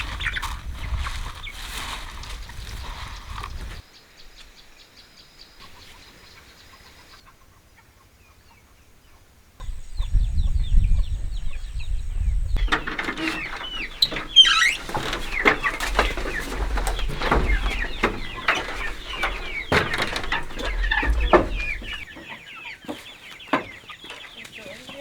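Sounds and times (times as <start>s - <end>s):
chickens clucking: 0.0s - 1.7s, 12.6s - 25.0s
low rumble: 15.0s - 22.1s.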